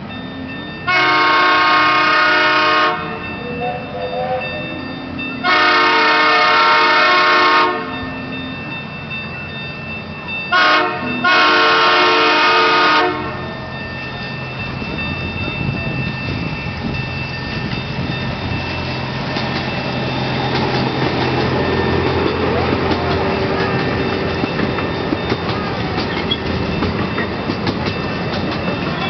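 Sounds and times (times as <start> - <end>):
train rumbling along track: 0.0 - 29.0
train whistle blasts: 0.9 - 3.2, 5.4 - 7.9, 10.5 - 13.4.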